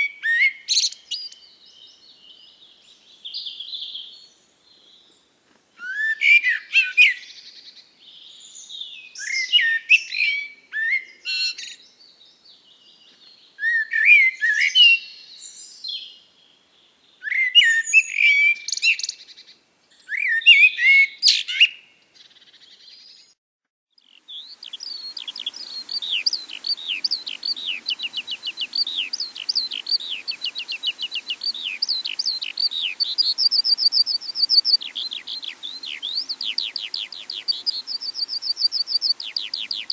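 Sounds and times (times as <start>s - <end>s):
bird whistling song phrases: 0.0s - 2.0s, 5.8s - 7.6s, 8.2s - 11.9s, 13.6s - 16.2s, 17.2s - 23.3s, 24.1s - 39.9s
faint hiss: 0.0s - 20.1s, 24.0s - 39.9s
bird downward-swept chirps: 24.0s - 39.9s.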